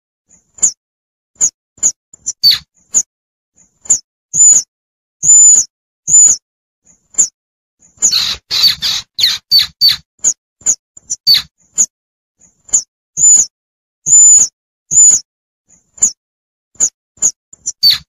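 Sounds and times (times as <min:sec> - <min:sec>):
high-pitched squirrel squeaks: 0:00.6 - 0:00.8, 0:01.4 - 0:03.1, 0:03.8 - 0:06.4, 0:07.2 - 0:11.9, 0:12.6 - 0:15.3, 0:15.9 - 0:16.2, 0:16.8 - 0:18.0.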